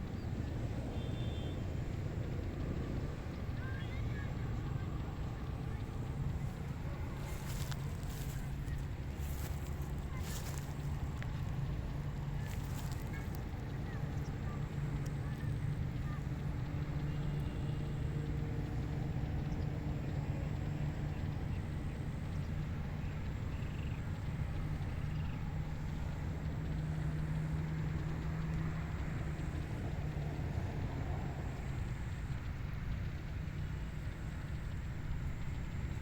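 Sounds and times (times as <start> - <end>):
low mechanical hum: 0.0 - 36.0.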